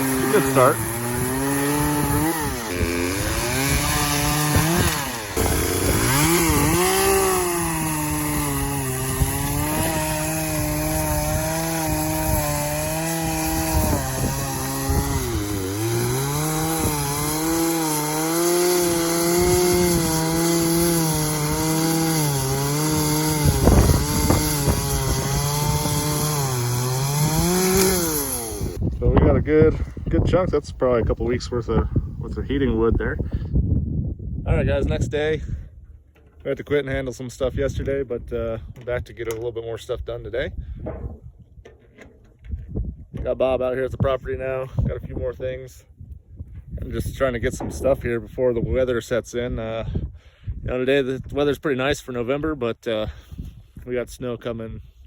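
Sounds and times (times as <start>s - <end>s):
chainsaw cutting wood: 0.0s - 28.9s.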